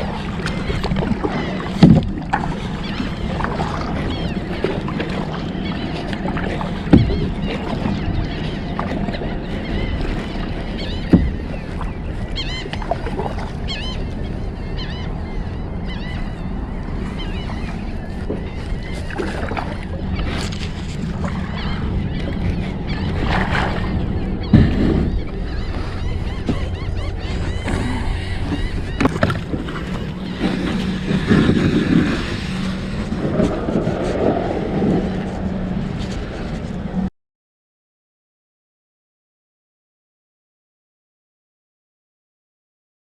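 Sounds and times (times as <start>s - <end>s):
water sloshing against hull: 0.0s - 37.1s
knocks against boat: 0.4s - 2.5s, 6.2s - 8.0s, 10.8s - 11.9s, 24.5s - 25.4s, 27.7s - 32.1s.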